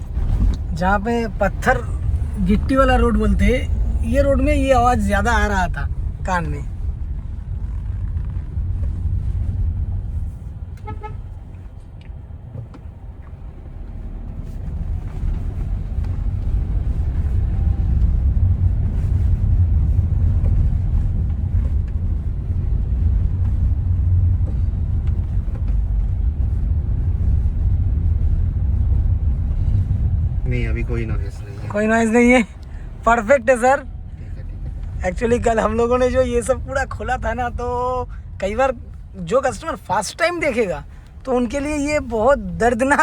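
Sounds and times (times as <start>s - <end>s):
tyres rumbling on gravel road: 0.0s - 43.0s
car horn toot: 10.8s - 11.4s.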